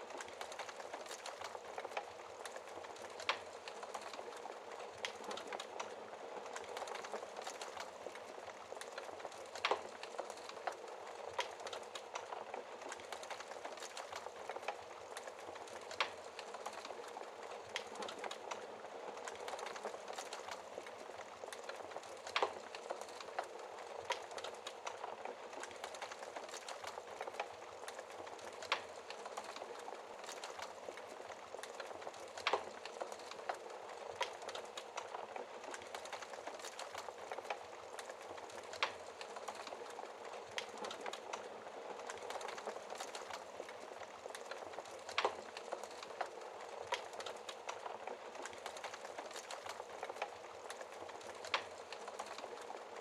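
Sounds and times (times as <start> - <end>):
wood fire crackling: 0.0 - 53.0
burning wood popping: 0.1 - 53.0.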